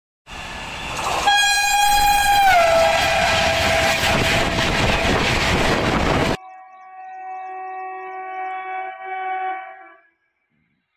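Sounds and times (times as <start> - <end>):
train coaches rushing past: 0.3 - 6.4
locomotive horn: 1.1 - 5.3, 6.0 - 10.2.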